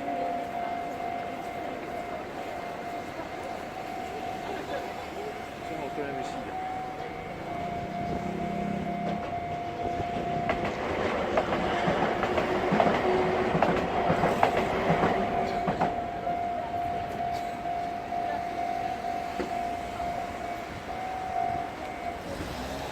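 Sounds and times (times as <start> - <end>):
steady high tone: 0.0 - 22.9
train wheels clattering: 7.9 - 16.0.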